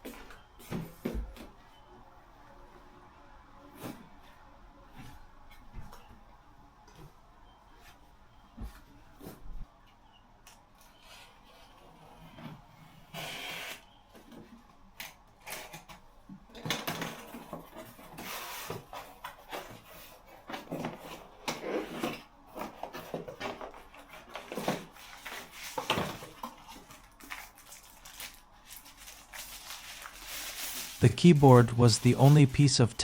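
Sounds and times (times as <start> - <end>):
keyboard packaging rustling: 22.6 - 33.0.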